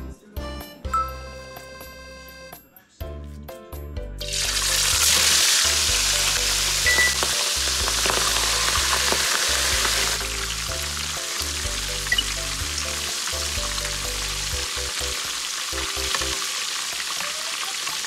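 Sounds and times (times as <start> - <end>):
fish sizzling in hot oil: 4.3 - 18.0.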